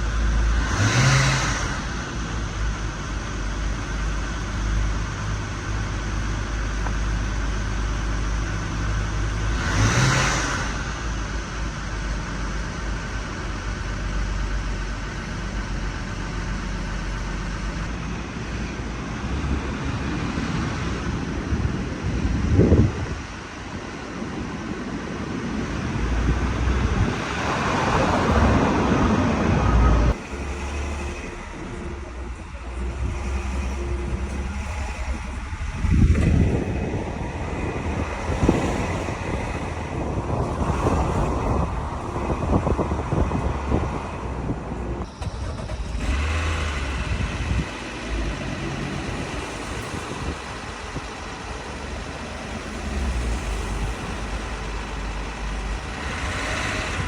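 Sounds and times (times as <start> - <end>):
car engine running: 0.0 - 57.0
outdoor noise: 0.0 - 57.0
rising sweep: 24.8 - 57.0.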